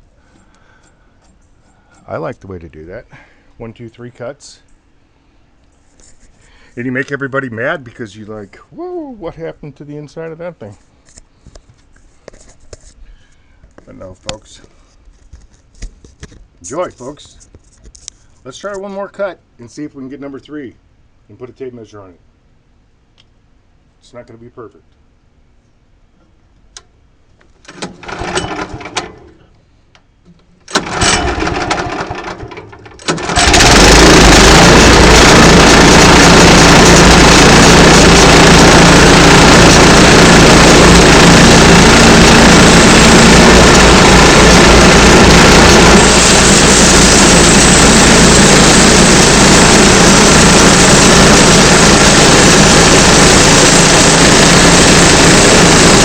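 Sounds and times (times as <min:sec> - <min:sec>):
small gasoline engine running: 0:27.8 - 0:29.3, 0:30.7 - 0:56.0
saw cutting through log: 0:33.1 - 0:56.0.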